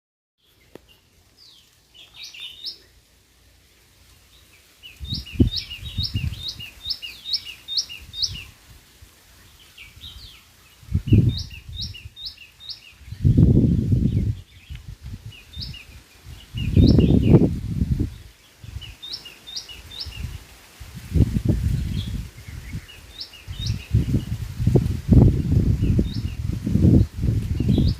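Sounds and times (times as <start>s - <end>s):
bird singing rising notes: 4.8s - 8.6s, 15.4s - 18.2s.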